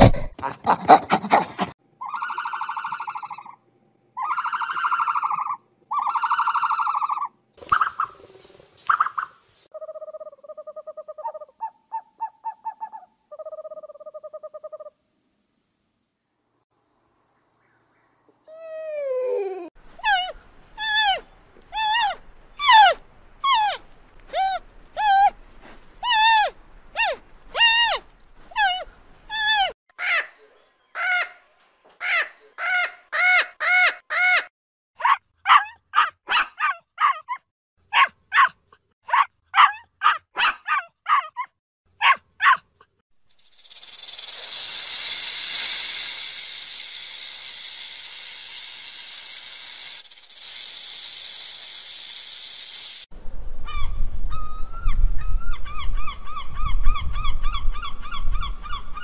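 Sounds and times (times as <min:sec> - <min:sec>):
steady hiss: 0:43.3 - 0:53.1
low wind rumble: 0:53.2 - 0:59.0.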